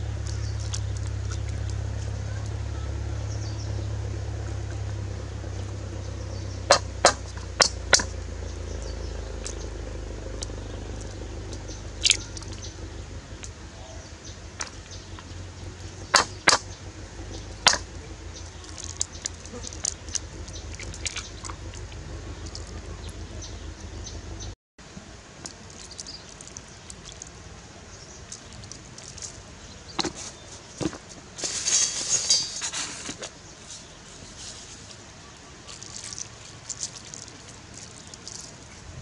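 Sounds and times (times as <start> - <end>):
hot oil spitting and popping: 0.0 - 2.7, 3.4 - 13.6, 14.3 - 23.2, 25.4 - 30.4, 35.6 - 39.0
low steady rumble: 0.0 - 39.0.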